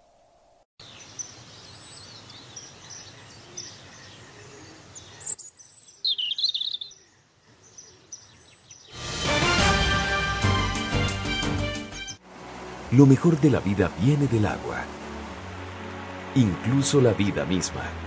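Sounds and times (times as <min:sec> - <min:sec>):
outdoor background noise: 0:00.0 - 0:09.0, 0:12.2 - 0:18.0
birds chirping and calling: 0:00.8 - 0:09.0
music: 0:09.0 - 0:12.2, 0:14.0 - 0:18.0.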